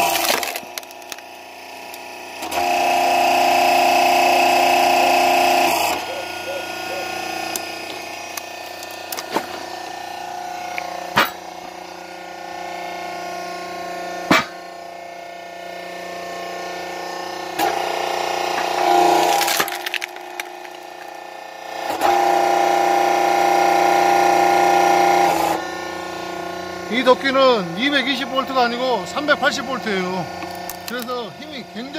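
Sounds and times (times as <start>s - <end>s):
wood cracking and splintering: 0.0s - 2.7s, 7.5s - 9.6s, 18.5s - 21.2s, 30.4s - 31.2s
hydraulic log splitter humming: 0.0s - 31.9s.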